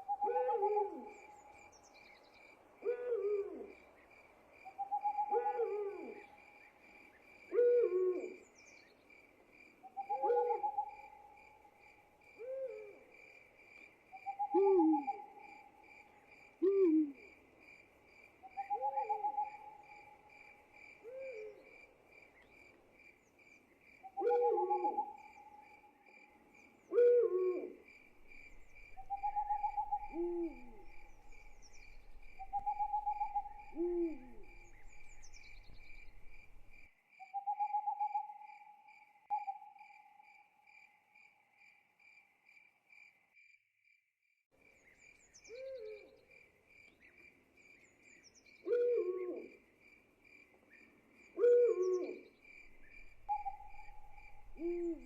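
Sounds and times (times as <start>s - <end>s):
owl hooting: 0.0s - 1.4s, 2.8s - 3.8s, 4.8s - 6.3s, 7.5s - 8.4s, 9.9s - 11.2s, 14.2s - 15.6s, 16.6s - 17.3s, 18.6s - 20.2s, 24.1s - 25.7s, 26.9s - 38.6s, 45.5s - 46.1s, 48.6s - 49.6s, 51.4s - 55.0s
crickets chirping: 0.0s - 43.6s, 44.6s - 55.0s.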